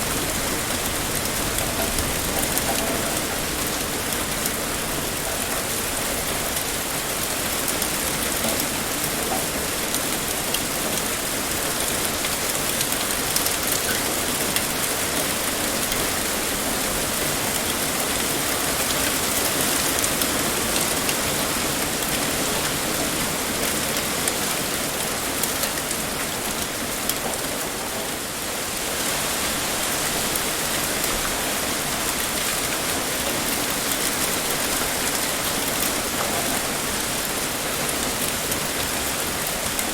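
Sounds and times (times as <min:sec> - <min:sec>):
raindrop impacts: 0:00.0 - 0:15.0
heavy rain pouring: 0:00.0 - 0:39.9.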